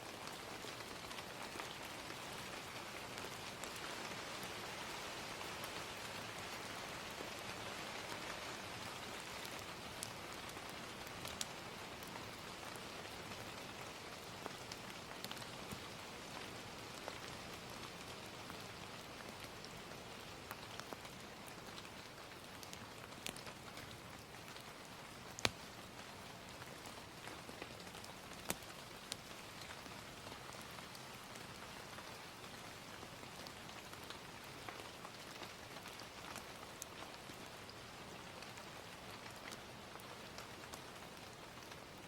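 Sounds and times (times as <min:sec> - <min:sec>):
gentle steady rain: 0:00.0 - 0:42.0
wood fire crackling pops: 0:25.3 - 0:25.7.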